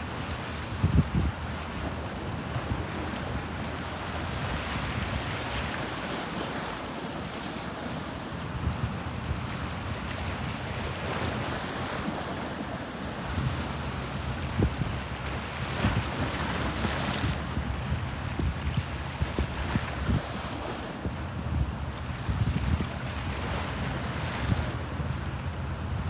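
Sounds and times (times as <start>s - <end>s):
wind buffeting microphone: 0.1s - 5.8s, 13.1s - 26.0s.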